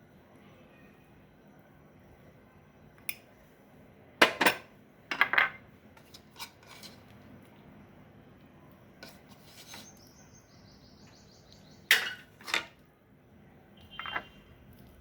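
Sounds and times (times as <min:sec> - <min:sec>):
metal utensils knocking on dish: 0:11.9 - 0:12.7.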